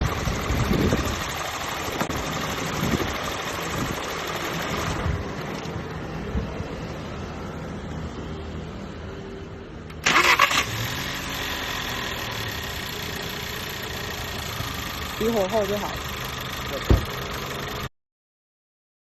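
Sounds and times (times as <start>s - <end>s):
car engine idling unevenly: 0.0s - 6.6s, 11.2s - 17.9s.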